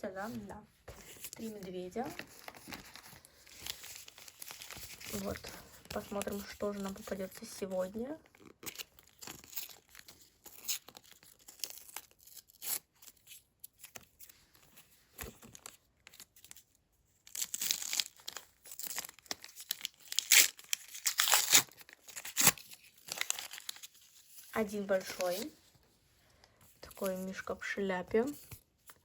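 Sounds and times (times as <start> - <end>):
paper tearing and rustling: 2.1 - 6.8, 17.3 - 25.5.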